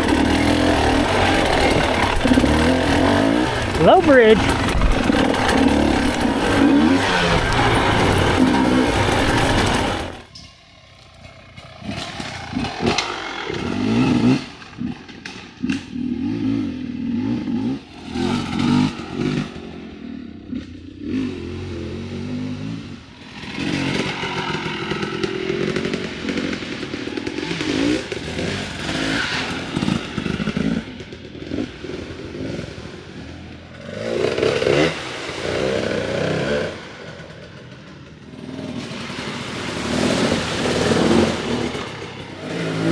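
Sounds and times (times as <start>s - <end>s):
dirt bike engine revving: 0.0s - 10.4s, 11.0s - 42.9s
clatter and scrapes: 0.0s - 16.0s, 23.2s - 31.8s, 33.7s - 42.9s.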